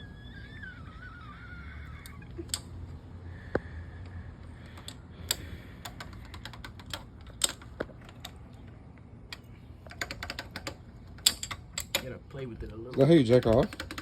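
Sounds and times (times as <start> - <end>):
ratchet wrench clicking: 12.8 - 14.0.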